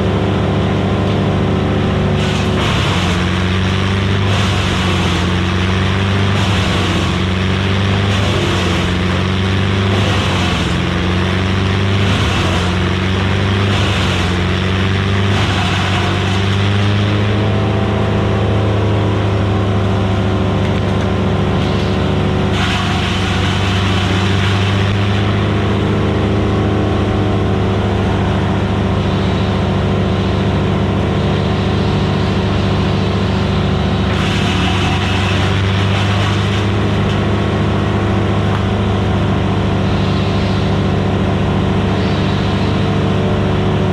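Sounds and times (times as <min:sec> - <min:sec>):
wood chipper running: 0:00.0 - 0:43.9
wood being chipped: 0:02.2 - 0:17.2, 0:21.6 - 0:25.6, 0:34.0 - 0:37.3.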